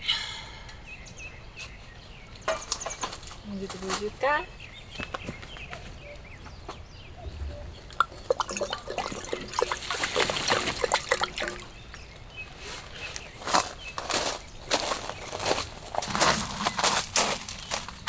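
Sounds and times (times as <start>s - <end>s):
rainwater dripping and trickling: 7.2s - 12.4s.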